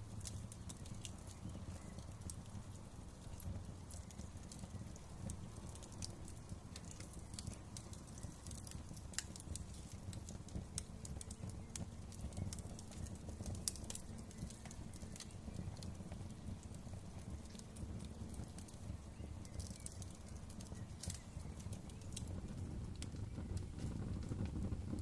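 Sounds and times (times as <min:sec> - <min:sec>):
fireplace fire crackling: 0:00.0 - 0:25.0.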